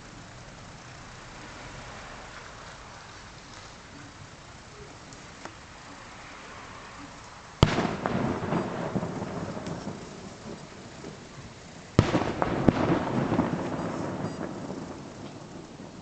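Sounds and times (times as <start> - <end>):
rolling rumble and crackle: 0.0 - 16.0
distant firework shells bursting: 7.6 - 16.0.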